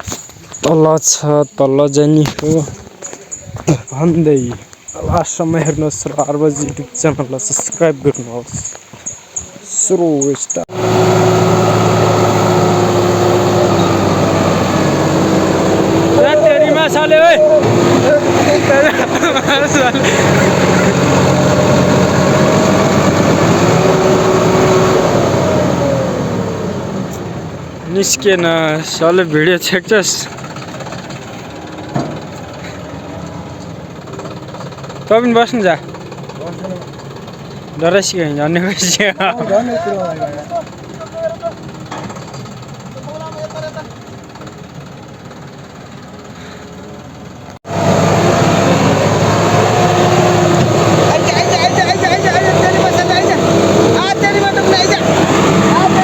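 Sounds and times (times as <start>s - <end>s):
tractor engine under load: 10.6s - 56.0s.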